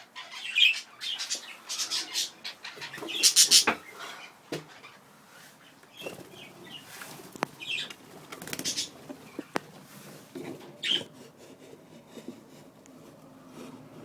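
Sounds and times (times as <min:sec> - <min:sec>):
wings fluttering and rustling: 0:01.2 - 0:11.4.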